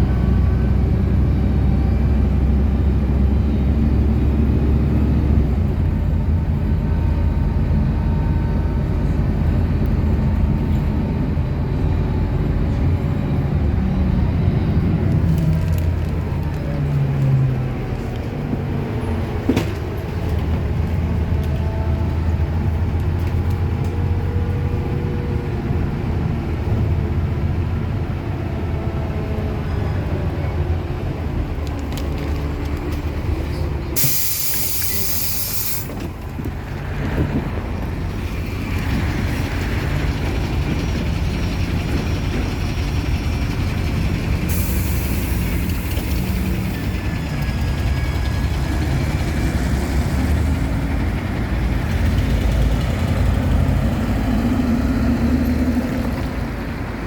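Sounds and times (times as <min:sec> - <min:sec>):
bus engine rumble: 0:00.0 - 0:57.0
compressed air hissing: 0:34.0 - 0:35.9, 0:44.5 - 0:46.5.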